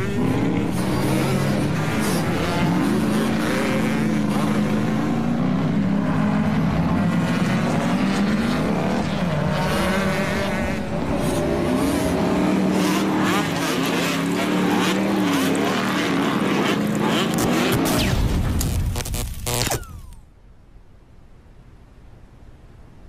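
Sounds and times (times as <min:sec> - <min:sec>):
cartoon motor droning: 0:17.2 - 0:20.2.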